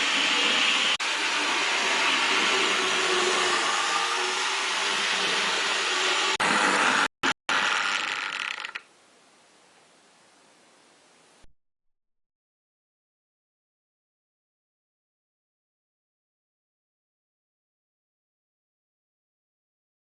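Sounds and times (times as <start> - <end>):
model train motor whirring: 0.1 - 8.8.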